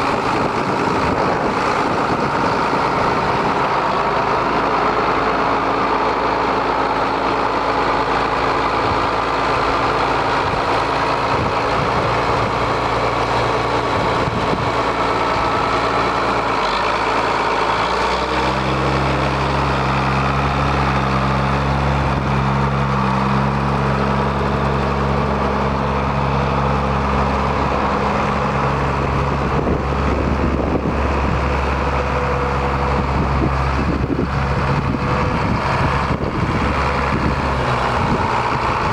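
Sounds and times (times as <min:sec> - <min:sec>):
tractor diesel engine idling: 0:00.0 - 0:38.9.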